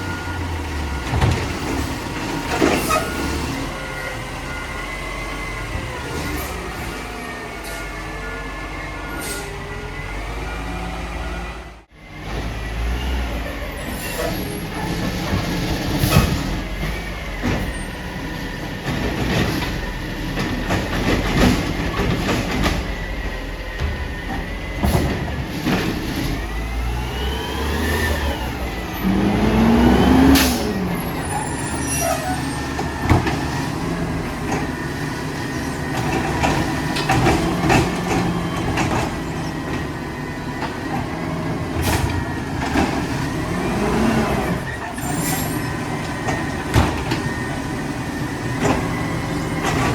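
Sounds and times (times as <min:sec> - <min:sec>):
knocks and clatter: 0:35.8 - 0:40.0.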